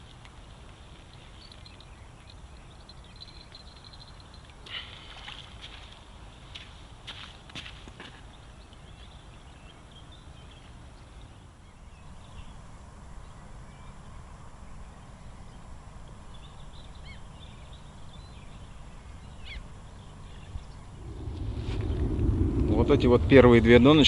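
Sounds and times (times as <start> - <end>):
low outdoor rumble: 20.6 - 24.0.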